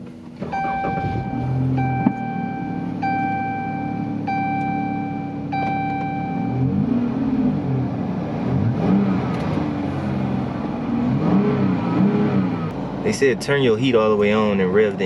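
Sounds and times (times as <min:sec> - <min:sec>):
car engine idling and revving: 0:00.0 - 0:15.0
car warning chime: 0:00.4 - 0:06.8.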